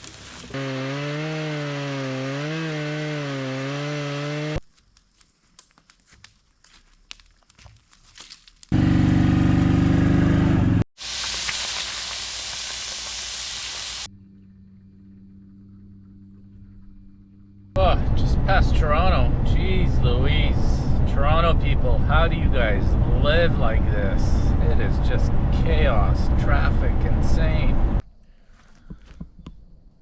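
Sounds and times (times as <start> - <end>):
chainsaw engine running: 0.5 - 4.6, 8.7 - 10.8.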